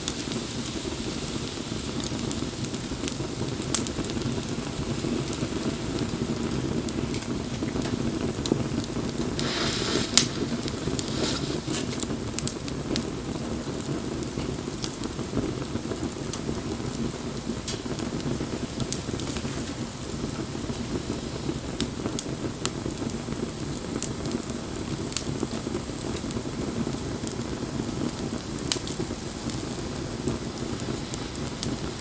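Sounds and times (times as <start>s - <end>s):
bonfire flame rushing: 0.0s - 32.0s
fire crackling and popping: 0.0s - 32.0s
brief fire hiss: 9.1s - 12.1s.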